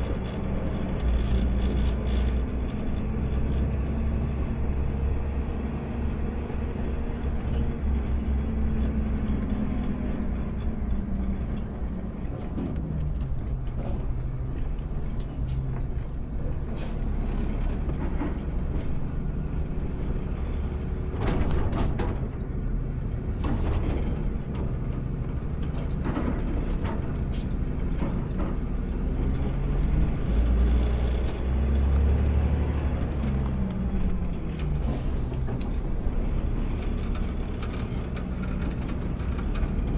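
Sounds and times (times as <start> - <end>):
garbage truck engine running: 11.8 - 39.9.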